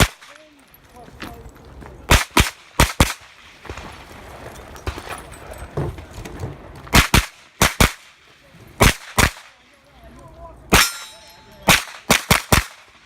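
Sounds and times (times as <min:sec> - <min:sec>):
rapid gunshots in pairs: 0:00.0 - 0:00.4, 0:02.1 - 0:03.8, 0:06.9 - 0:08.2, 0:08.8 - 0:09.6, 0:11.7 - 0:13.0.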